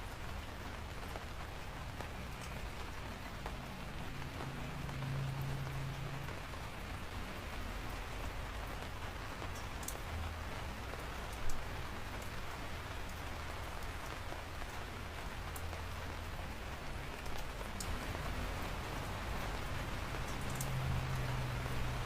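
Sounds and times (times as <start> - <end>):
raindrops ticking: 0.0 - 22.0
steady rain hiss: 0.0 - 22.0.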